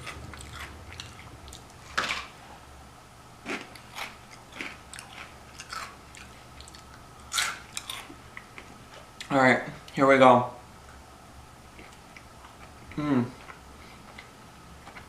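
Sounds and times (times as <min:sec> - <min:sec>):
crunchy chewing of snacks: 0:00.0 - 0:02.4, 0:03.4 - 0:09.4.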